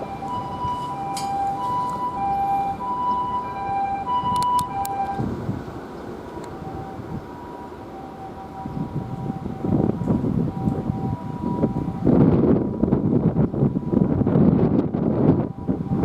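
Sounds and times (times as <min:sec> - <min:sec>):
two-tone ambulance siren: 0:00.0 - 0:16.0.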